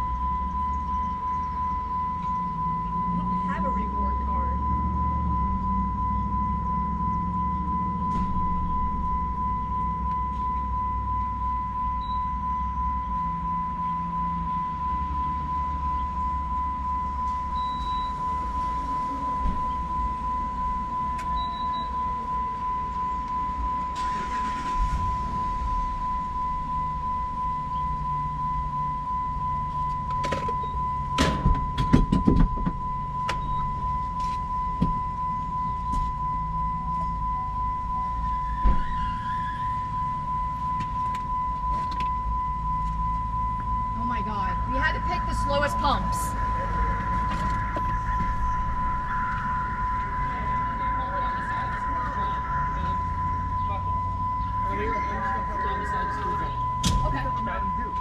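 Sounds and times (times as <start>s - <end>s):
short high beeps: 0.0s - 31.8s
high-pitched electronic tone: 0.0s - 58.0s
vehicle rumbling: 0.0s - 58.0s.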